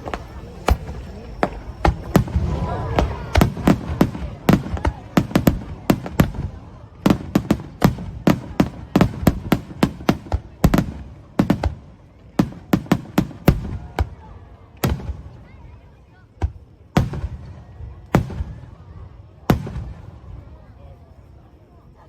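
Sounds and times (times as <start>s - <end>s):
fireworks bursting with sharp bangs: 0.0s - 20.7s.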